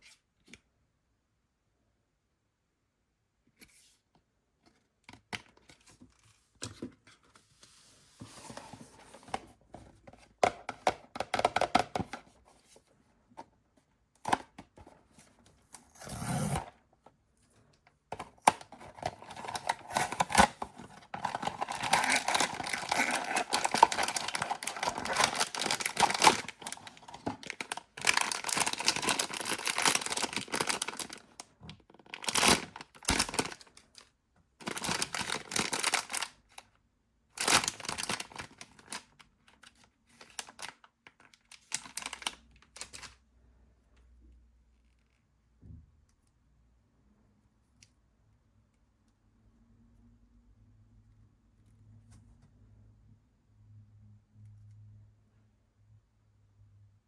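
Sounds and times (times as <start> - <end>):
packaging crinkling and tearing: 18.1 - 36.6, 37.4 - 43.2
packaging clicks and rustles: 18.1 - 36.7, 37.4 - 43.2.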